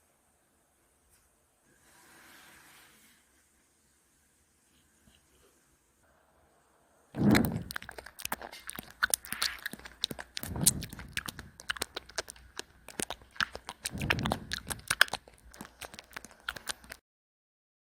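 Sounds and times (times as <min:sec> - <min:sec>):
cat crunching food: 0:07.2 - 0:17.0.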